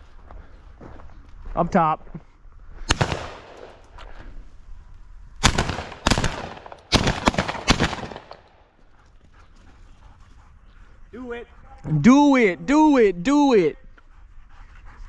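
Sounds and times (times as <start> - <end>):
shotgun shots: 2.9 - 3.8, 5.4 - 8.6.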